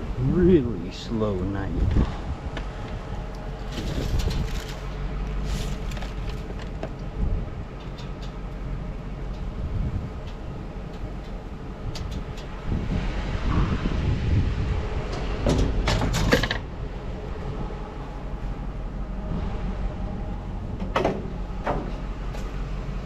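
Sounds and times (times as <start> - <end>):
road noise: 0.0 - 23.0
vehicle engine: 0.0 - 23.0
light clicks and rattles: 7.7 - 8.6, 10.2 - 12.6.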